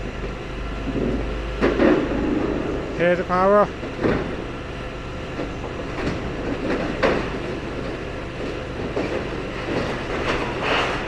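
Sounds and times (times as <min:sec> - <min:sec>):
excavator engine running hard: 0:00.0 - 0:11.0
metallic crunches and screeches: 0:09.6 - 0:11.0.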